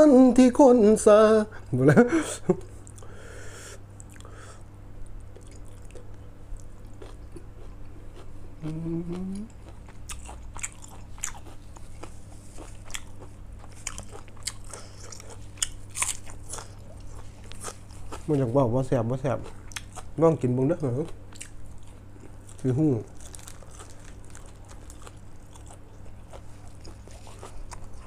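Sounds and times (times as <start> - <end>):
person chewing crunchy food: 4.0 - 18.6, 19.2 - 20.2, 20.8 - 28.0
person humming: 8.6 - 9.6.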